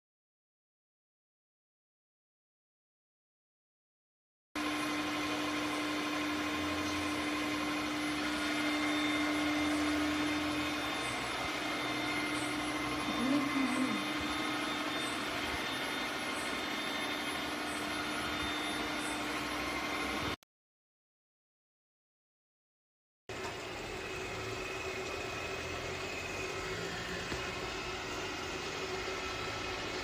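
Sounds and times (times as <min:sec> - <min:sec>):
robot vacuum whirring: 0:04.6 - 0:20.4, 0:23.3 - 0:30.0.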